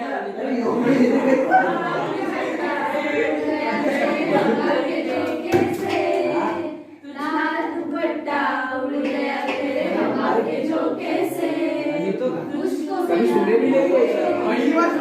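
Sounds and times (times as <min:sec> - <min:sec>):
young voices singing together: 0:00.0 - 0:15.0
hand clapping: 0:05.1 - 0:06.7, 0:09.0 - 0:09.9.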